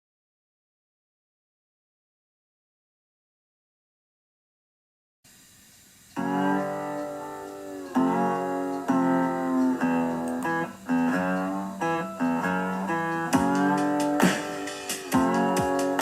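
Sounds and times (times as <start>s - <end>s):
acoustic guitar strummed chords: 6.2s - 16.0s.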